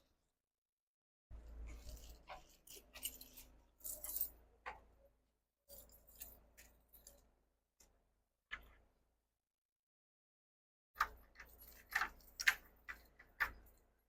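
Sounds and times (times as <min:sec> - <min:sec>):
light clinks and rattles: 0:01.7 - 0:04.4.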